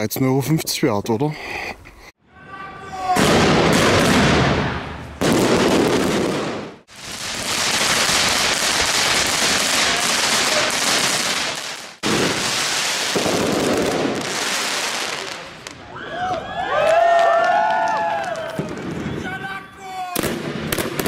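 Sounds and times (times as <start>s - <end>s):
fireworks crackling and hissing: 3.2s - 15.9s, 20.2s - 21.0s.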